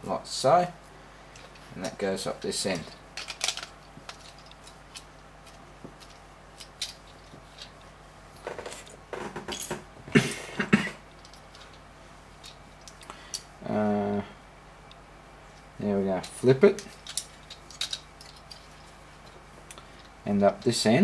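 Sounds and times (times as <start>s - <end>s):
plastic bricks clicking: 3.2s - 7.0s, 17.0s - 18.5s.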